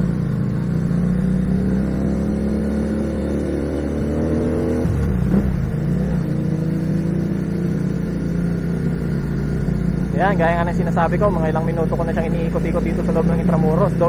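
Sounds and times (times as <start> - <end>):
motorcycle engine running: 0.0 - 14.0
motorcycle riding past: 0.0 - 14.0.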